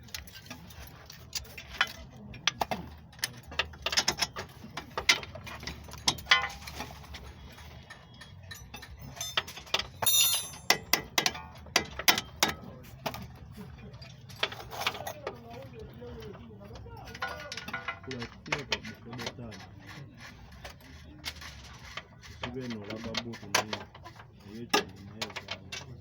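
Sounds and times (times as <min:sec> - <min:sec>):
metal tools clinking: 0:00.0 - 0:15.8, 0:16.4 - 0:19.4
metallic rattling: 0:02.8 - 0:12.6.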